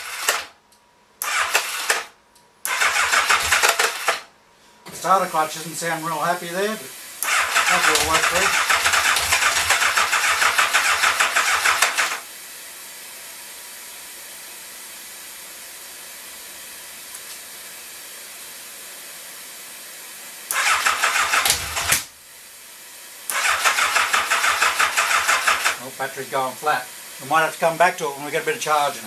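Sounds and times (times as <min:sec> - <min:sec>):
motorcycle starter cranking: 0:00.0 - 0:00.5, 0:01.2 - 0:04.3, 0:07.2 - 0:12.2, 0:20.5 - 0:22.1, 0:23.3 - 0:25.8.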